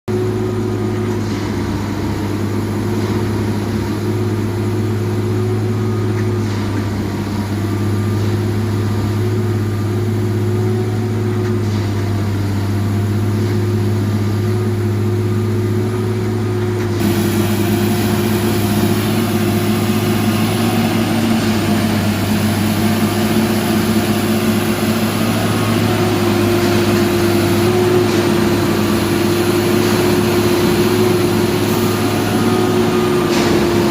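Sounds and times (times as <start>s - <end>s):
diesel engine humming: 12.2s - 33.9s.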